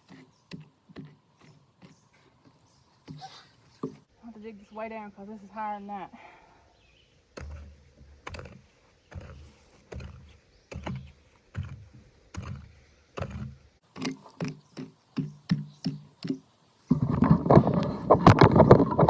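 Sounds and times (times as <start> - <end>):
hoe chopping into wet soil: 7.3 - 16.4.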